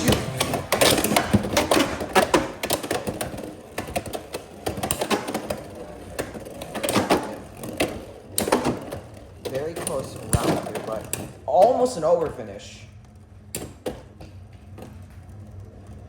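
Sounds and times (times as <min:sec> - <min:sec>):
spinning tops clashing: 0:00.0 - 0:11.4.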